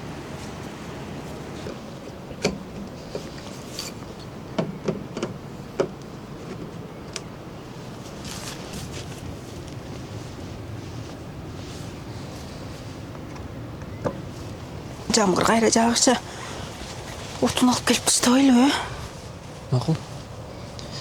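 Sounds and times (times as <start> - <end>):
rain: 0.0 - 4.4
sharp knocks and clicks: 4.6 - 7.3
brief rustle: 8.0 - 12.9.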